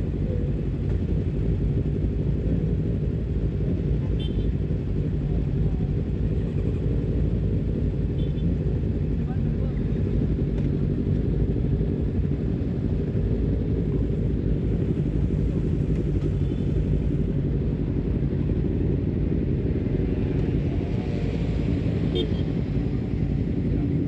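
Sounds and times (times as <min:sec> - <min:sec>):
motorcycle exhaust rumble: 0:00.0 - 0:18.7.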